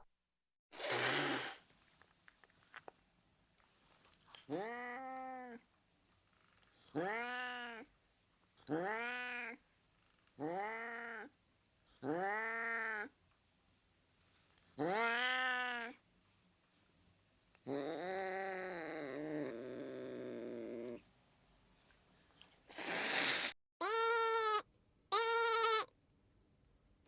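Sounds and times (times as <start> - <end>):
cat meowing: 7.0 - 7.9, 8.7 - 9.6, 14.8 - 16.0, 23.8 - 25.9.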